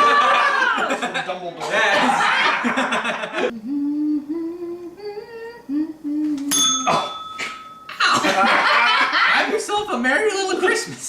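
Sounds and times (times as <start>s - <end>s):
person humming a melody: 3.5s - 7.2s
small bell ringing: 6.5s - 8.3s.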